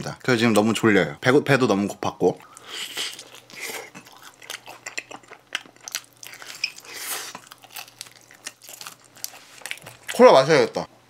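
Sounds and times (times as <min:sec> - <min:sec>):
soft crunches and mouth clicks: 0:02.4 - 0:10.2
person chewing pizza: 0:02.4 - 0:10.6.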